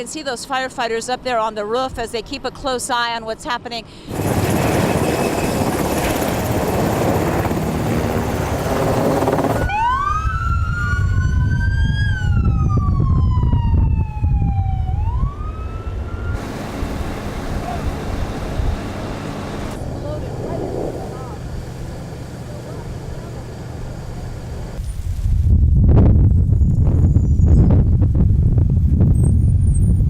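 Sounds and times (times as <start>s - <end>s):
emergency siren wailing: 9.1s - 19.8s
loud rushing noise: 16.4s - 22.6s
low rumble: 16.5s - 30.0s.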